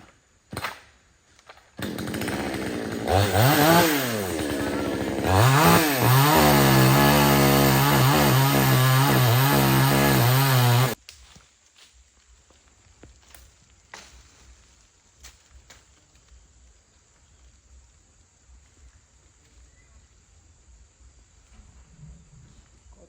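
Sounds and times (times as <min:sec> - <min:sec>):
chainsaw engine revving: 0:01.8 - 0:11.0.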